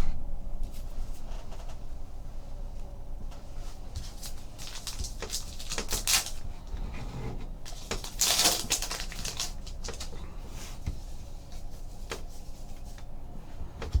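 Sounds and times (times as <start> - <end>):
foil wrapper crinkling: 3.9 - 6.4, 7.7 - 10.2
trading cards being shuffled: 4.0 - 6.4, 7.7 - 10.2.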